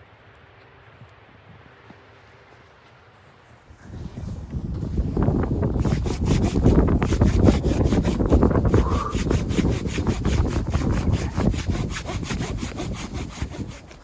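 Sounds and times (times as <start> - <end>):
hand saw cutting wood: 5.6 - 14.0.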